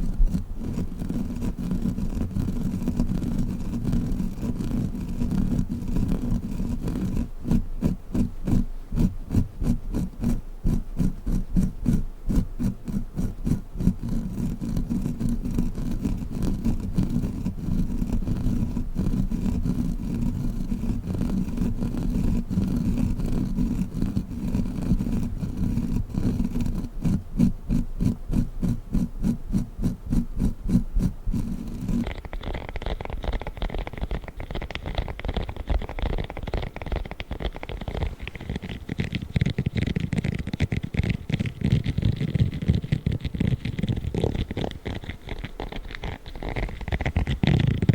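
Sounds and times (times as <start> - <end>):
sticky toy tapping: 27.1 - 47.9.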